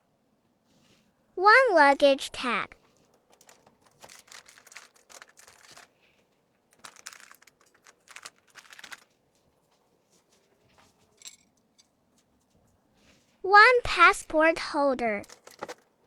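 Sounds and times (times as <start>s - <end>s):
plastic packaging rustling: 2.8s - 11.4s, 15.2s - 16.0s.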